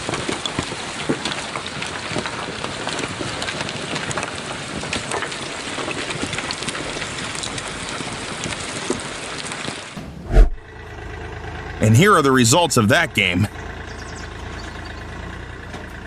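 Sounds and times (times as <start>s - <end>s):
short loud low thump: 10.0s - 10.6s.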